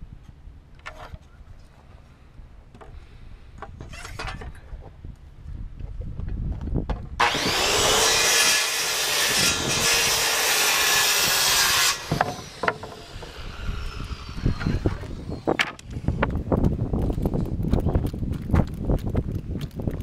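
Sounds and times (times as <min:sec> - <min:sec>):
circular saw cutting wood: 0:07.2 - 0:15.6
wood pieces knocking: 0:12.0 - 0:13.4, 0:14.6 - 0:15.9.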